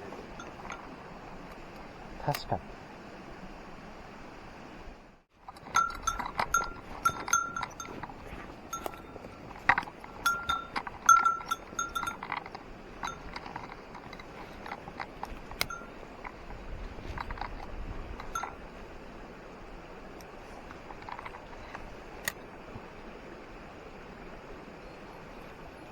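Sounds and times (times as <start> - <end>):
small metal bell jingling: 0.1 - 1.0, 5.5 - 18.7.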